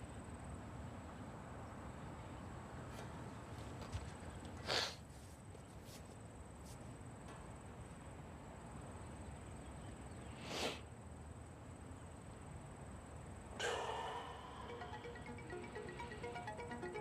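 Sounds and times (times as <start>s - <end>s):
faint background hum: 0.0s - 17.0s
person breathing or sighing: 13.6s - 15.0s
soft repeated musical notes: 13.7s - 17.0s.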